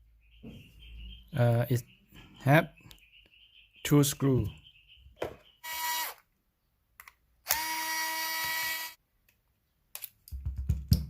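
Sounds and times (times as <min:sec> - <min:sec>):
electric screwdriver motor whining: 0:05.6 - 0:06.2, 0:07.5 - 0:09.0.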